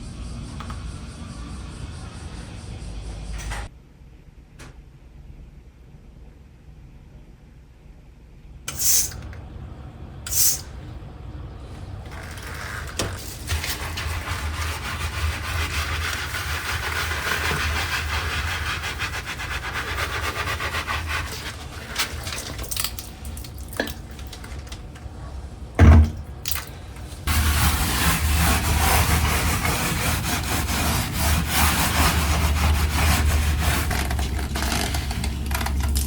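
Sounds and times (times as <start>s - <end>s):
scrubbing brush scouring floor: 13.2s - 22.6s, 27.2s - 35.3s.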